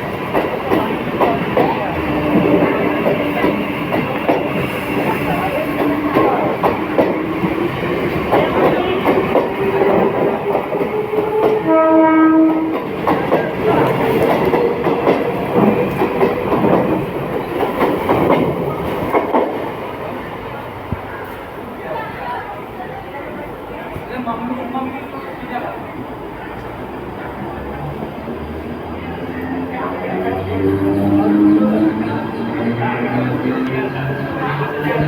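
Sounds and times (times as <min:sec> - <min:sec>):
train wheels clattering: 0:00.0 - 0:19.7
train horn blast: 0:10.9 - 0:12.9.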